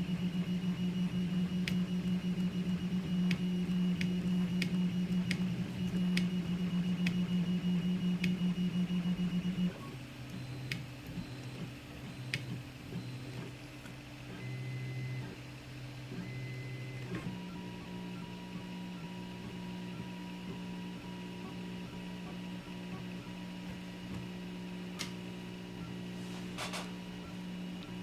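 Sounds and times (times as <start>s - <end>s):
stepper motors humming: 0.0s - 12.5s.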